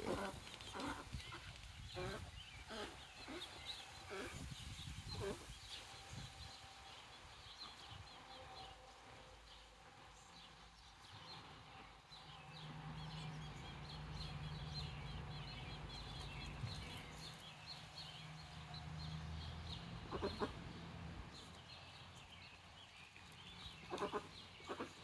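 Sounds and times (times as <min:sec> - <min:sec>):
low animal call: 0:23.9 - 0:25.0.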